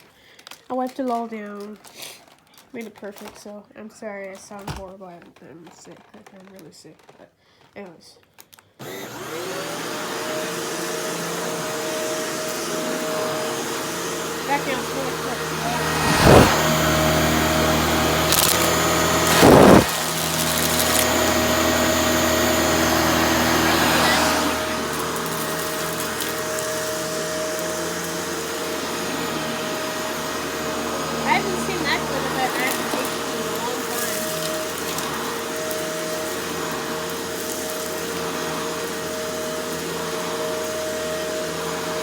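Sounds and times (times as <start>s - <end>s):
vacuum cleaner motor whine: 8.8s - 42.0s.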